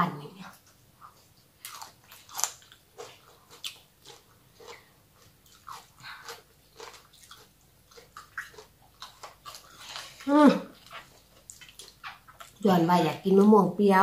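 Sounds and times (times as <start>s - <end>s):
crunchy chewing: 0.4s - 13.2s.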